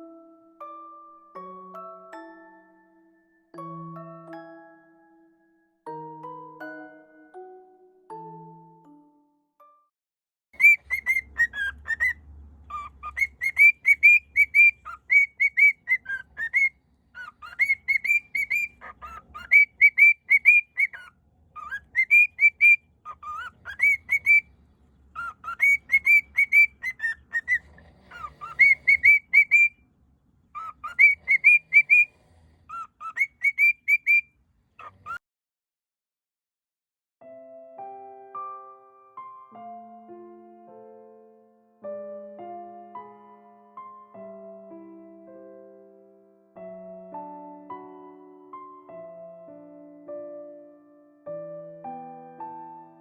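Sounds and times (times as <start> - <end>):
cockatiel whistling: 10.6 - 24.5, 25.1 - 29.8, 30.5 - 35.2.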